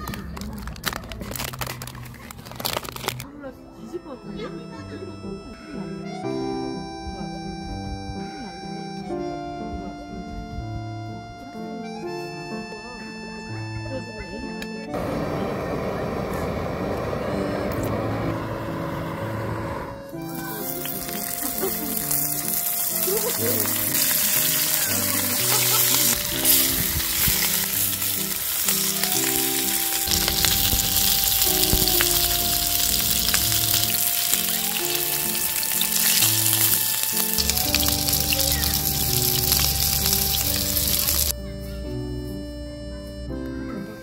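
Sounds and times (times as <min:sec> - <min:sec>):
background music: 0:00.0 - 0:44.0
food sizzling in a pan: 0:20.3 - 0:41.3.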